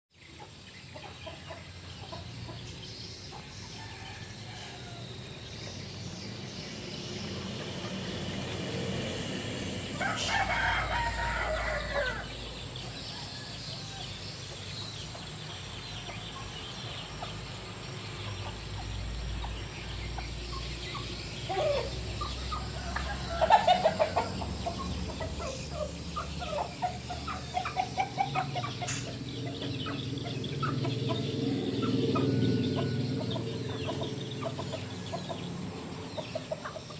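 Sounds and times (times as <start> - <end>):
chickens clucking: 0.2 - 36.9
sharp loud bird calls: 0.2 - 36.9
rooster crowing: 3.5 - 5.3, 9.9 - 14.2, 21.4 - 24.6, 31.5 - 33.5.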